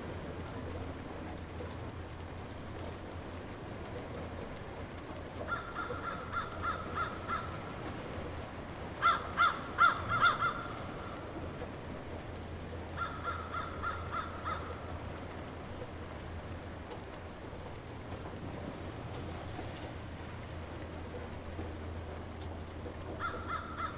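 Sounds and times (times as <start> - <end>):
light rain hissing: 0.0 - 23.9
bird calling: 9.0 - 11.3, 23.2 - 23.9.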